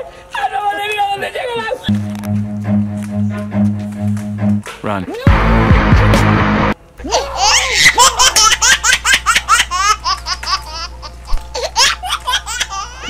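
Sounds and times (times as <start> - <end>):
low hum: 1.9 - 4.7
child giggling: 7.0 - 13.0.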